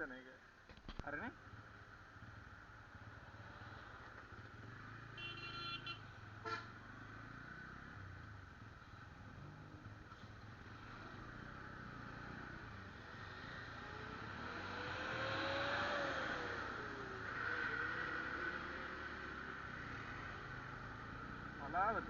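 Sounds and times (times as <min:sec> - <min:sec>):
road noise: 0:00.0 - 0:22.0
vehicle horn: 0:05.2 - 0:06.8
engine revving: 0:10.6 - 0:22.0.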